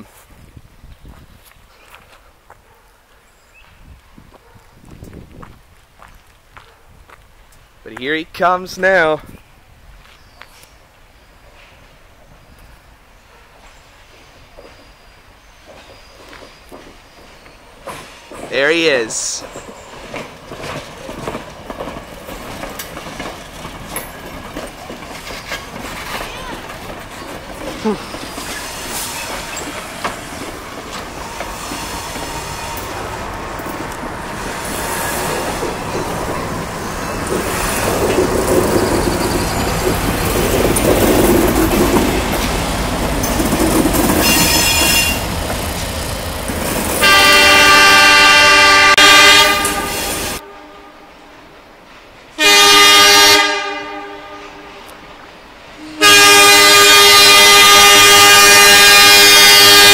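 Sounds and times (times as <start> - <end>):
train wheels clicking and rumbling: 15.6 - 50.4
train horn blast: 44.2 - 45.3, 47.0 - 51.2, 52.4 - 55.0, 55.8 - 59.9.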